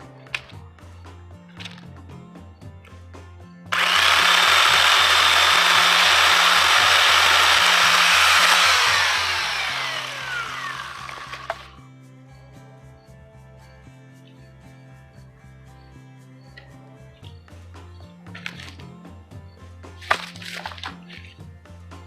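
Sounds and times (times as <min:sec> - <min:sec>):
electric chainsaw whining: 0:03.7 - 0:11.7.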